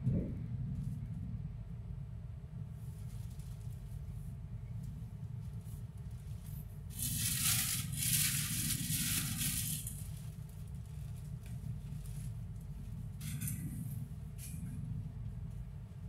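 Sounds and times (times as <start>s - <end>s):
low rumble of moving train: 0.0s - 16.0s
hissing rustling noise: 6.9s - 11.4s.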